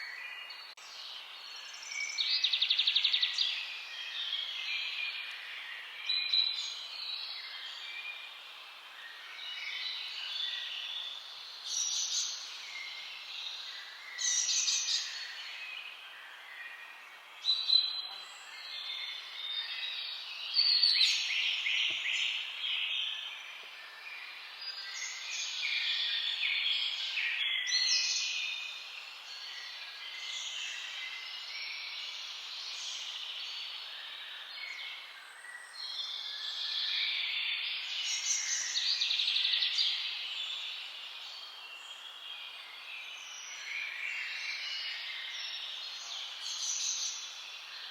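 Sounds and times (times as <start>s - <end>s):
faint steady hiss: 0.0s - 47.9s
wild birds singing and calling: 0.0s - 47.9s.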